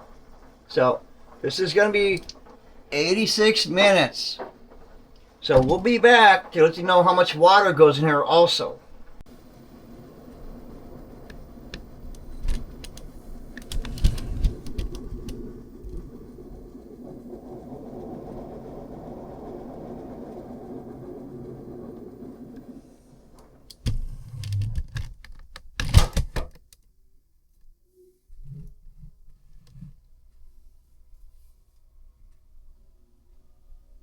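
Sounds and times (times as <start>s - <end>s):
sharp knocks and clicks: 23.7s - 26.8s.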